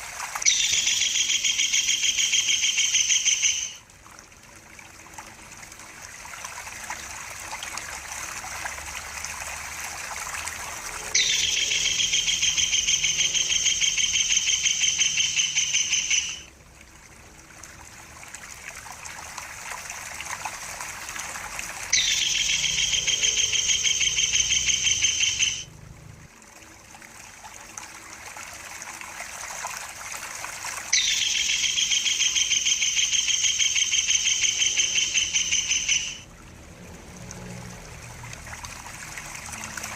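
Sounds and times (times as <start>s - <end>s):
trickling water: 0.0s - 39.9s
kingfisher trilling calls: 0.4s - 3.8s, 11.0s - 16.5s, 21.9s - 25.7s, 30.9s - 36.3s.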